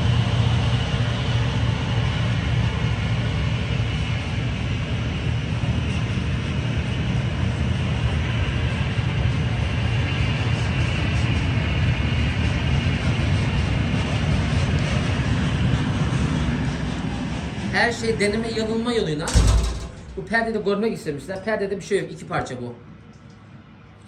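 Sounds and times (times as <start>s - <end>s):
train passing: 15.6s - 19.4s.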